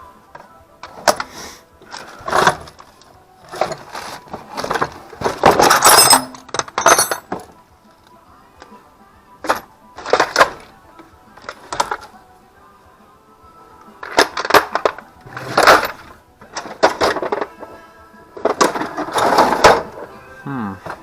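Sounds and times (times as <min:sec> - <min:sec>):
quiet music: 0:00.0 - 0:21.0
metal hand tools clinking: 0:04.6 - 0:07.5.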